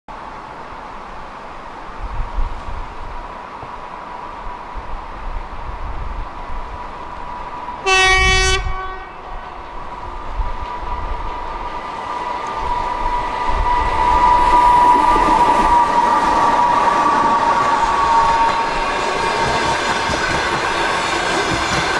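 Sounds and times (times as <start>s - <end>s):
train whine and rumble: 0.1s - 21.9s
train horn blast: 7.8s - 9.6s.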